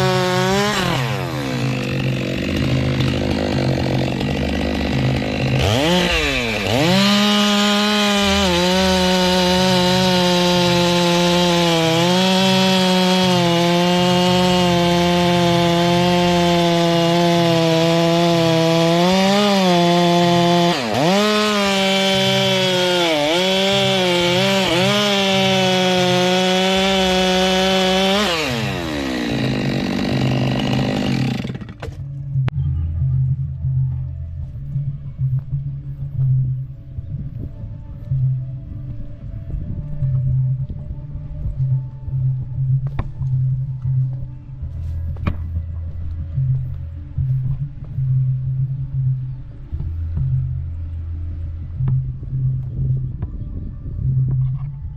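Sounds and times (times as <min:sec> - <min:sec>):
chainsaw cutting wood: 0:00.0 - 0:32.1.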